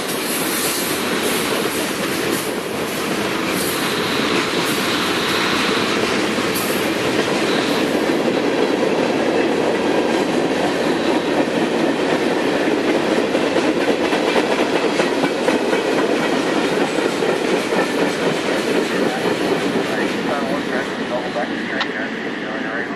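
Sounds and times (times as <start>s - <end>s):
freight train cars rumbling past: 0.0s - 22.9s
high wheel squeal: 7.4s - 8.0s.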